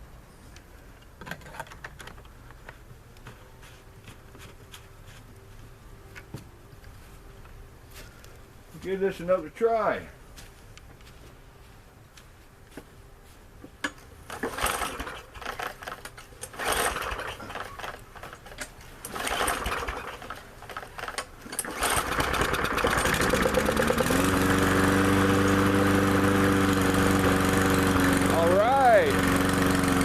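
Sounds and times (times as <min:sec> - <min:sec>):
lawnmower engine running: 0:14.3 - 0:30.0
recoil starter pulls: 0:14.3 - 0:30.0.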